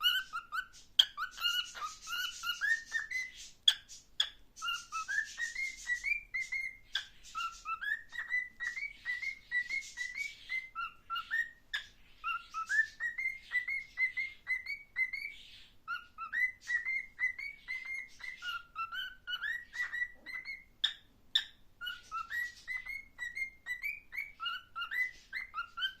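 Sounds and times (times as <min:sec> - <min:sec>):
cockatiel whistling a tune: 0:00.0 - 0:26.0
cockatiel clicks and chatter: 0:00.1 - 0:10.6.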